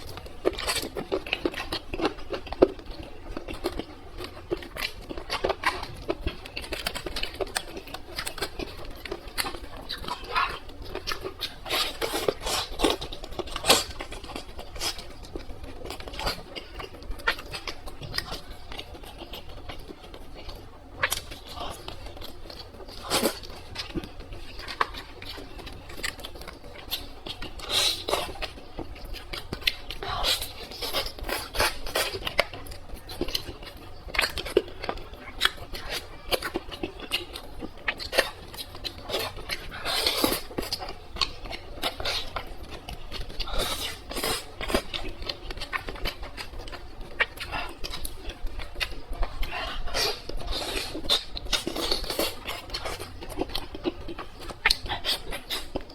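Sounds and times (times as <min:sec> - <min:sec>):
person chewing food: 0:00.0 - 0:55.9.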